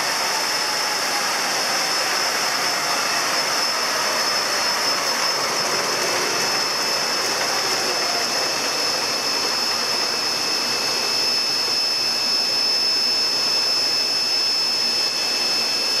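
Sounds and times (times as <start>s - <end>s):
diesel generator running: 0.0s - 16.0s
high-pitched whine: 0.0s - 16.0s.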